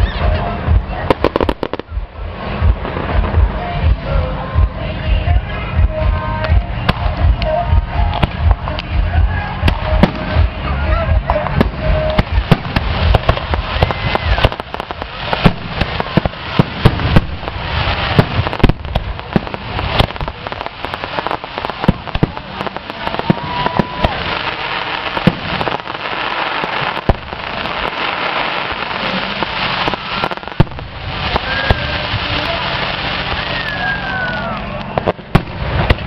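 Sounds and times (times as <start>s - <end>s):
fireworks crackling: 0.0s - 36.0s
firework shells bursting: 11.3s - 33.5s.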